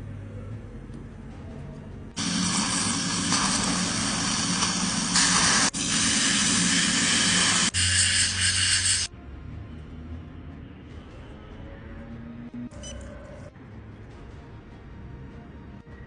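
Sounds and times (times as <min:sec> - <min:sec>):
loud steady hiss: 0:02.2 - 0:09.1.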